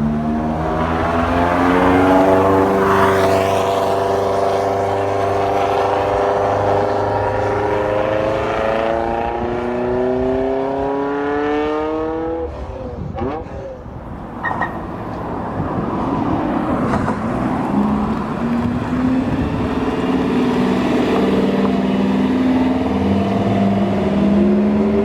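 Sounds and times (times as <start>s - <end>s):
car engine accelerating hard: 0.0s - 25.0s.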